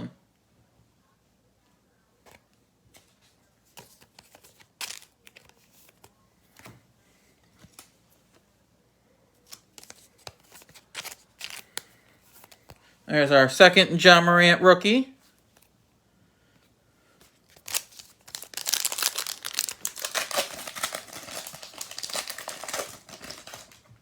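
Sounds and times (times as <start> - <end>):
card wrappers rustling and clicking: 2.2 - 6.8, 9.4 - 12.9, 17.2 - 24.0.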